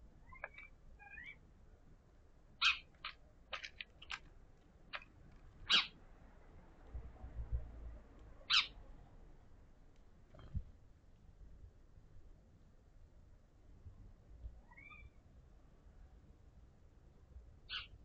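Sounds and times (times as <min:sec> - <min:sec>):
cat chattering chirps: 0:02.6 - 0:03.2, 0:05.7 - 0:06.0, 0:08.5 - 0:08.8, 0:17.7 - 0:18.0.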